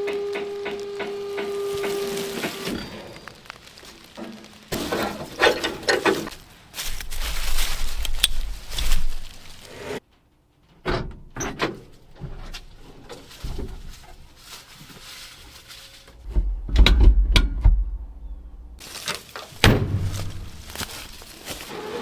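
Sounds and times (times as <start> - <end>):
scraping on car parts: 4.0 - 10.2.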